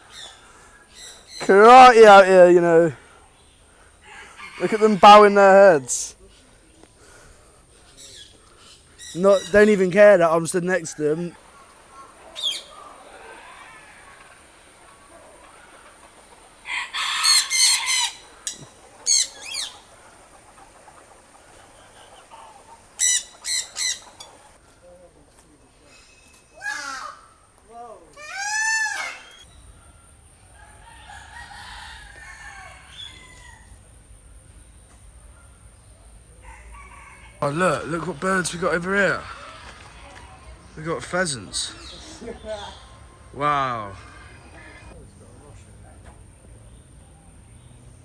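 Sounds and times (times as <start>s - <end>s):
rooster crowing: 4.0s - 6.1s, 12.3s - 15.8s, 16.6s - 18.4s, 30.5s - 33.8s, 36.4s - 37.8s
bird chirps: 7.8s - 15.8s.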